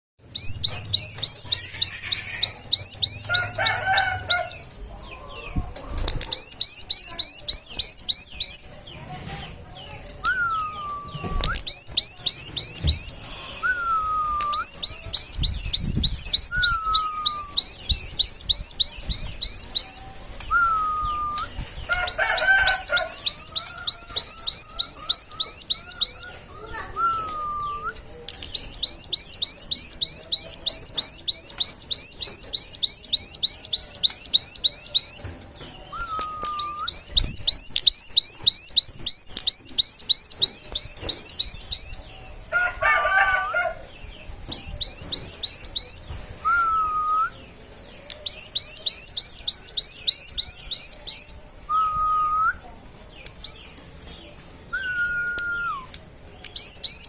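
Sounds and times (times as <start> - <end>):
songbird trills: 0.4 - 5.6, 6.2 - 8.8, 10.2 - 13.2, 14.4 - 42.2, 44.5 - 51.4
bird chattering: 0.4 - 8.8, 21.9 - 27.4, 28.4 - 35.2
falling bird whistles: 10.3 - 19.9.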